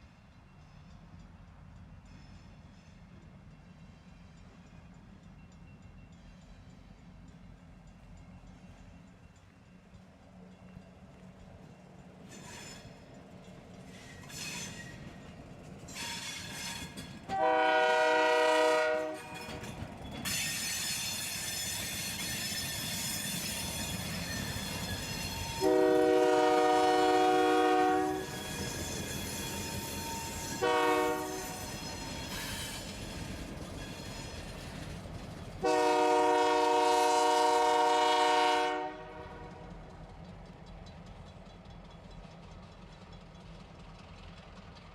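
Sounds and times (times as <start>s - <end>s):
train rolling past: 0.0s - 44.9s
locomotive air horn: 17.3s - 19.4s, 25.5s - 28.4s, 30.5s - 31.7s, 35.6s - 39.6s.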